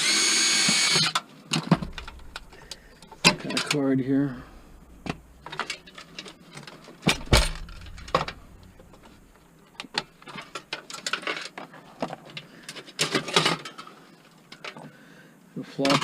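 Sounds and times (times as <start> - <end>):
computer parts clattering: 1.6 - 11.6.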